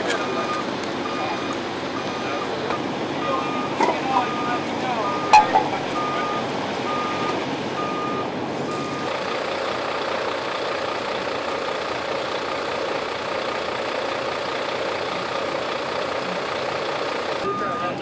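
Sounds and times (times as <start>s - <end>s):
large truck engine running: 0.0s - 18.0s
vehicle back-up alarm beeping: 0.1s - 9.2s, 14.7s - 18.0s.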